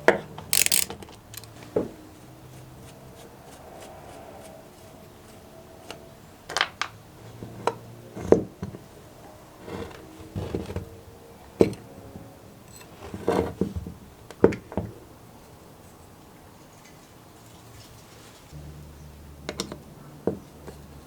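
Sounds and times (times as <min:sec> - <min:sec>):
small parts rattling: 0:00.5 - 0:01.6
tools clicking and knocking: 0:00.5 - 0:01.6.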